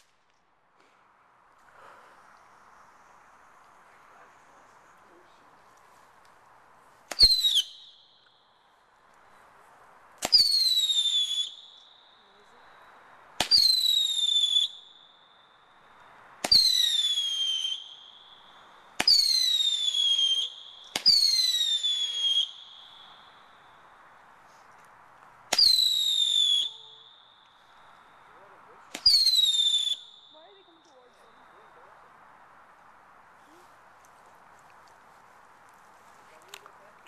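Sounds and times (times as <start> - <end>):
whistling fireworks: 0.0 - 0.4, 6.9 - 24.7, 25.5 - 32.1.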